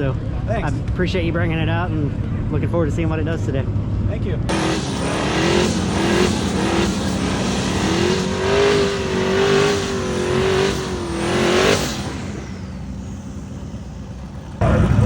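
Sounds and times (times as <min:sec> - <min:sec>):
car engine revving high: 0:04.5 - 0:15.0.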